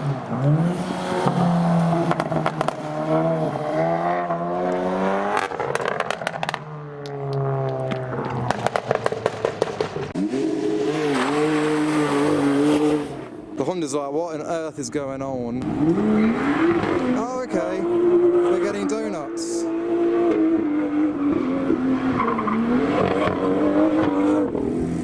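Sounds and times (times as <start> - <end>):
car engine revving: 0.0 - 13.7, 15.0 - 25.0
exhaust crackles and pops: 1.2 - 2.9, 4.7 - 10.2.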